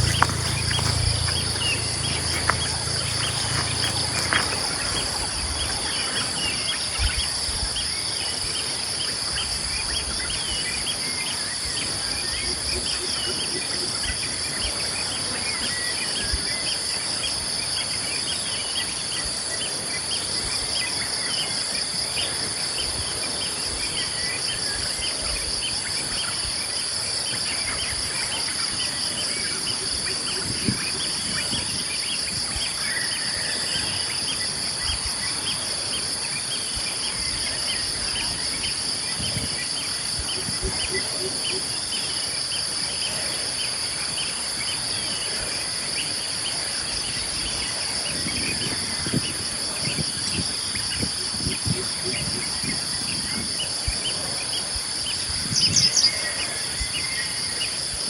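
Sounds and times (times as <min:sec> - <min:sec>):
small birds chirping: 0:00.0 - 0:12.0, 0:50.7 - 0:57.8
insects buzzing: 0:00.0 - 0:58.0.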